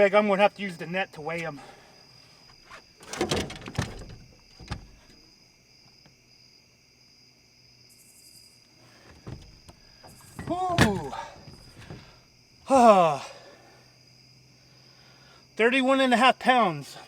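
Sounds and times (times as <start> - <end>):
night insects chirring: 0.0 - 17.0
knocks and rattles: 2.6 - 5.2, 9.0 - 12.2.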